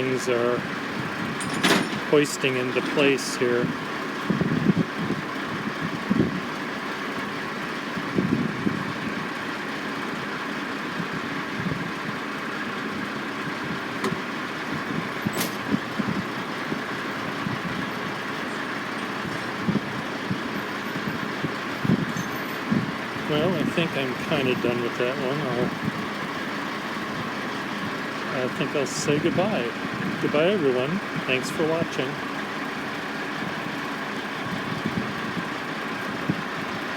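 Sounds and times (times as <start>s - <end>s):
heavy vehicle and crane engines: 0.0s - 36.9s
low rumbles: 13.5s - 33.6s.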